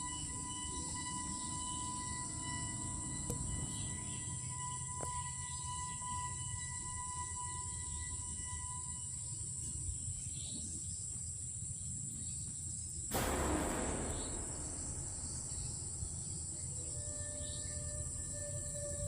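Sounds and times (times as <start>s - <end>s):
low rumble: 13.1s - 19.0s
sudden loud burst of noise: 13.1s - 19.0s.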